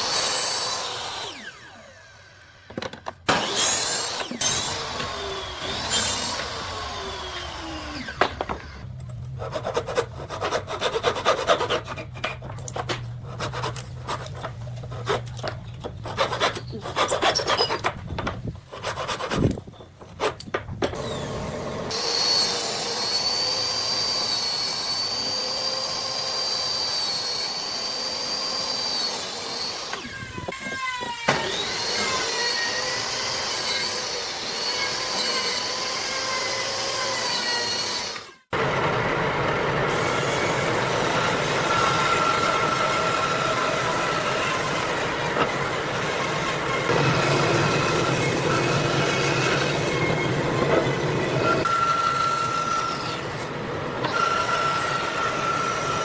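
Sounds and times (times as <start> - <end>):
power tool whining: 0.0 - 9.1, 20.9 - 56.0
rasping strokes on wood: 9.4 - 17.8, 18.6 - 20.4.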